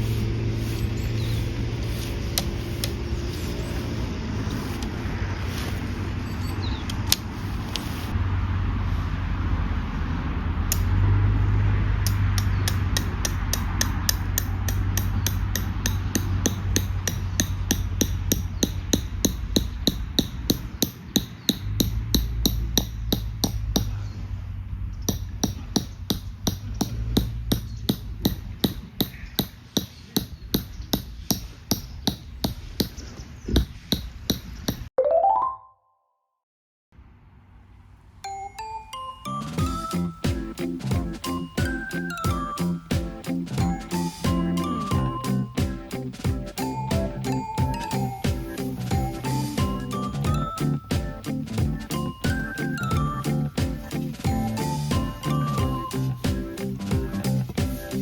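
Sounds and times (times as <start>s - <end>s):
low steady rumble: 0.0s - 18.4s
hammer strikes: 12.0s - 24.0s, 25.0s - 33.0s, 39.4s - 58.0s.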